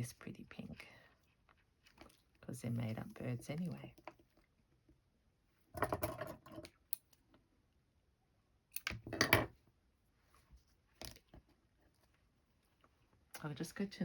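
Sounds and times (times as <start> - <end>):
thread and supplies rustling and clicking: 1.1 - 4.5.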